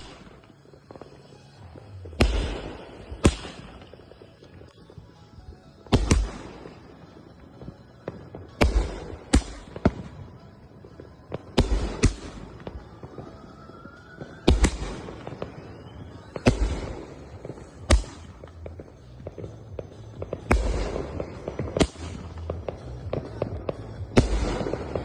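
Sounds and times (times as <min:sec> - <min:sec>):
firework booms: 0:00.0 - 0:05.0, 0:14.2 - 0:25.0
rising firework whistle: 0:12.2 - 0:18.2.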